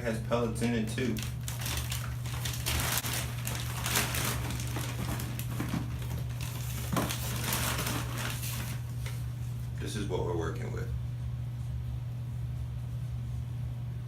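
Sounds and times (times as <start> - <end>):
steady low hum: 0.0 - 14.0
plastic bag crinkling: 0.6 - 9.2.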